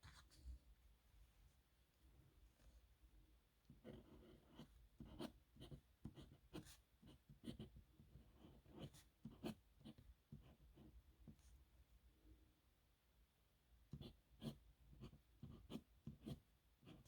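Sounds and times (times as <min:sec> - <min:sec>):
dip pen scratching on paper: 0:03.8 - 0:10.9.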